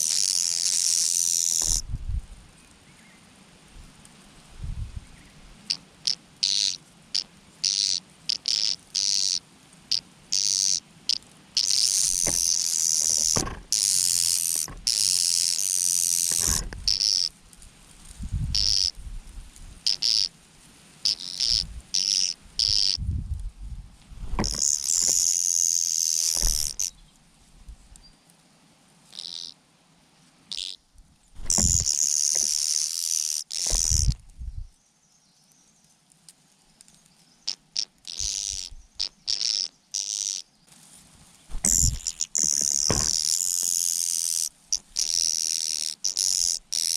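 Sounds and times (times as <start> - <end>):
low thumps: 16.3 - 17.0, 24.2 - 25.2, 26.4 - 26.8, 31.4 - 31.9, 33.7 - 34.7, 41.5 - 42.1
birds shrill begging calls: 18.6 - 19.0.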